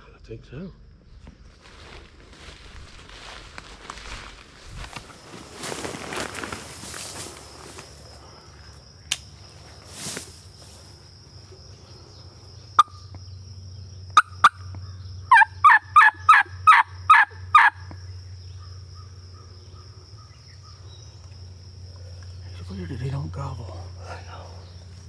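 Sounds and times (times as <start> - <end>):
sharp clicks: 9.0 - 9.3
turkey call yelps: 14.2 - 17.9.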